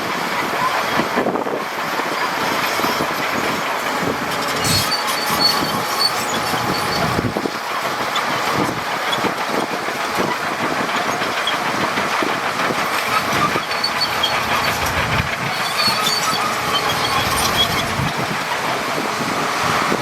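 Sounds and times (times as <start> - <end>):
bulldozer engine running: 0.0 - 20.0
steel tracks clanking: 0.0 - 20.0
high squeaks: 2.2 - 7.4, 11.1 - 18.2.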